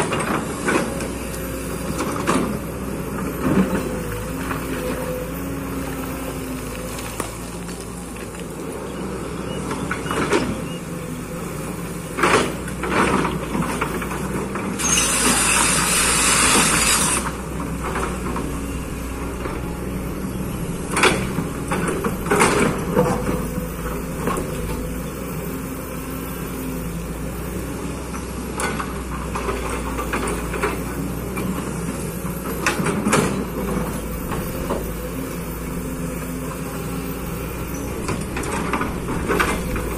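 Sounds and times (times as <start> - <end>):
excavator diesel engine running: 0.0 - 39.9
loud hiss: 14.8 - 17.3.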